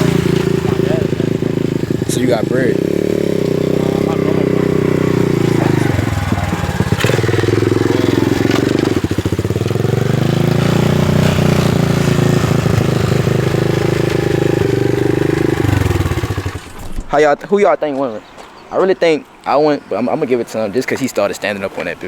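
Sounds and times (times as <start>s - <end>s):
dirt bike engine revving: 0.0s - 17.1s.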